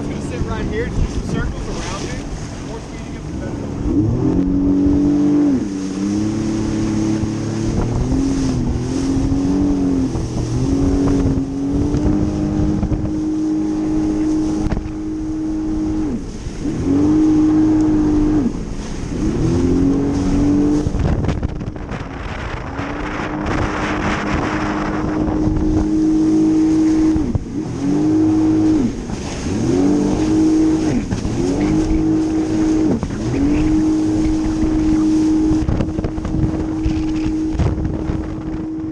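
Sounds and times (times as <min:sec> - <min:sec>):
jet ski engine revving: 0:00.0 - 0:38.9
water spray rushing: 0:22.9 - 0:37.6.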